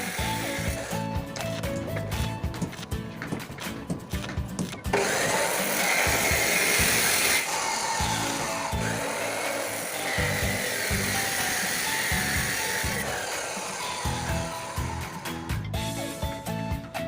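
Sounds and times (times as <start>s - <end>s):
power tool whining on steel: 0.0s - 1.8s, 4.7s - 16.3s
background music with beat: 0.0s - 5.0s, 13.9s - 17.0s.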